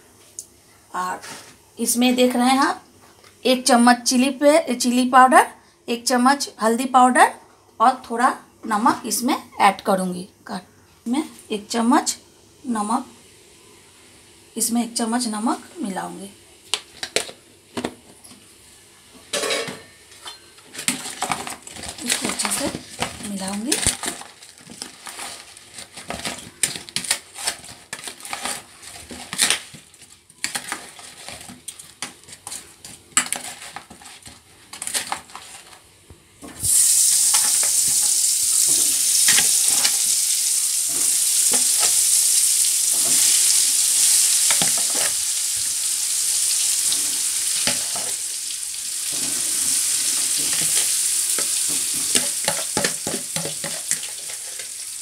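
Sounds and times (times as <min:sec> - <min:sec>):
potatoes sizzling in hot fat: 0:11.1 - 0:19.0, 0:20.4 - 0:55.0
metal spoon scraping plastic bowl: 0:20.3 - 0:29.8, 0:30.4 - 0:35.8.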